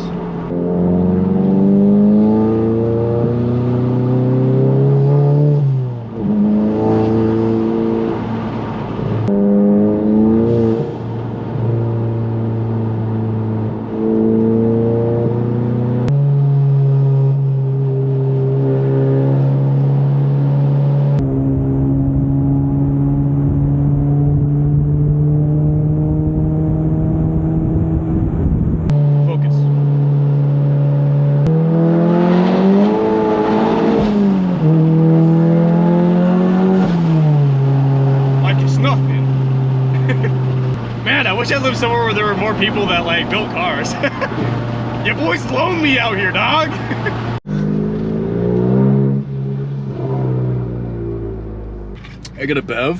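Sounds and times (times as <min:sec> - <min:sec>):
car engine droning: 0:00.0 - 0:52.9.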